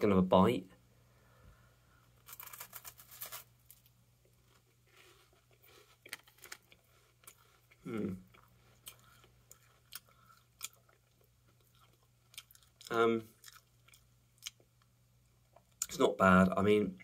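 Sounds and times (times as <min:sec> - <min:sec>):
crunchy wafer being chewed: 0:04.4 - 0:14.9.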